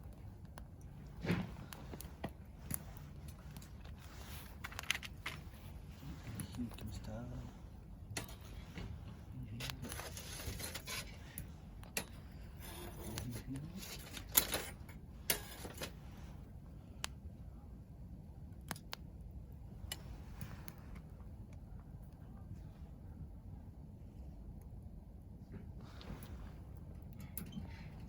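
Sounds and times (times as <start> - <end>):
soft hiss of burning: 0.0 - 28.0
wood fire crackling and popping: 0.0 - 28.0.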